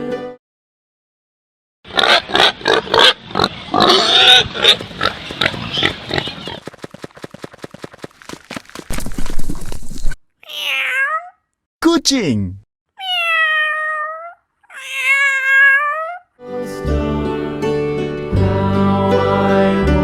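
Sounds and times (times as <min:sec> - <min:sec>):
pigs grunting and squealing: 0:01.9 - 0:06.6.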